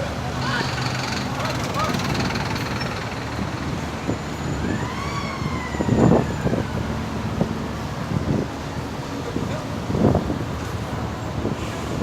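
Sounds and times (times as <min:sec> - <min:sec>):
traffic: 0:00.0 - 0:12.0
emergency vehicle siren wailing: 0:00.4 - 0:08.4
wind noise: 0:02.2 - 0:12.0.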